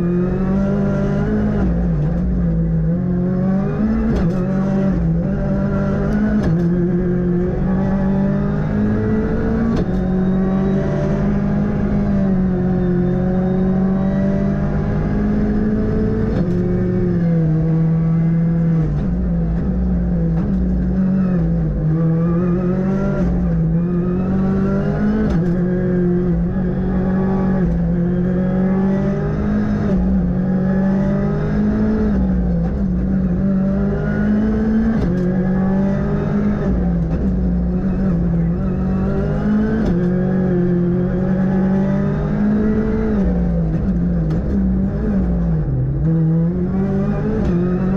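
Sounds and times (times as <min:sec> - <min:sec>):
rally car engine revving: 0:00.0 - 0:47.9.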